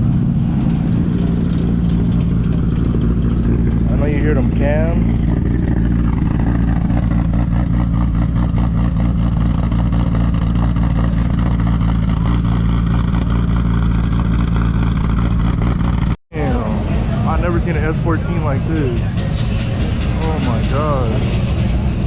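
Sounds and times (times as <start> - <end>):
engine idling with pulsing exhaust: 0.0 - 22.0.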